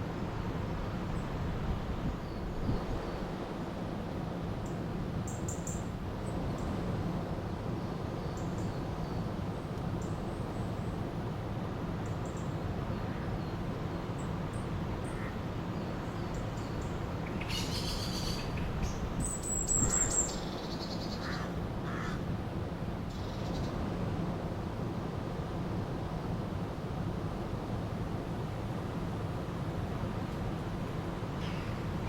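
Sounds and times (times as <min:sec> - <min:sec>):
birds calling: 0:16.0 - 0:22.2.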